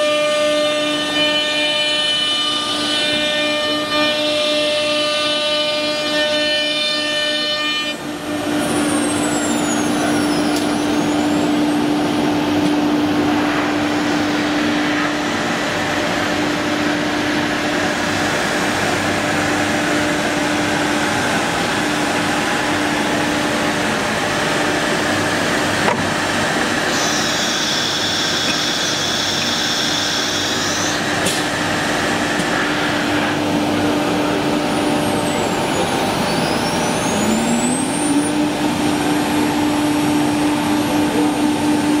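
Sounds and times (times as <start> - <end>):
cnc router spindle hum: 0.0 - 42.0
high-pitched whine: 7.8 - 42.0
spindle sweeping pitch: 33.8 - 38.5.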